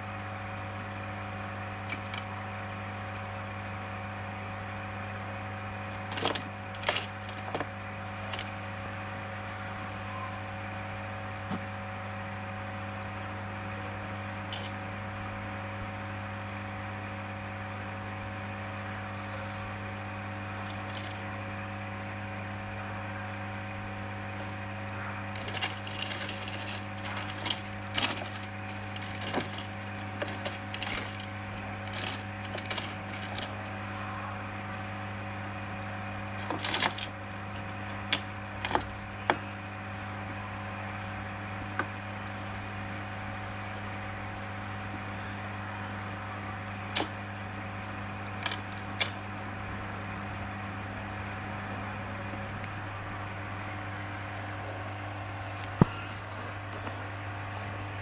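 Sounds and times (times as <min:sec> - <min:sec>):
steady low hum: 0:00.0 - 0:58.0
sharp clicks and knocks: 0:05.9 - 0:07.7, 0:08.3 - 0:08.5, 0:20.6 - 0:21.2, 0:25.3 - 0:33.5, 0:36.4 - 0:39.6, 0:47.0 - 0:47.2, 0:48.4 - 0:49.2.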